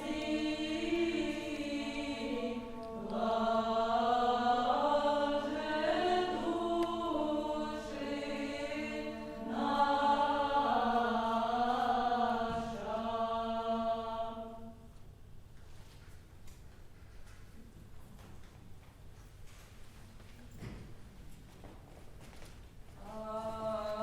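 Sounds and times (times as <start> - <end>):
voices singing a chant: 0.0 - 14.9, 23.0 - 24.0.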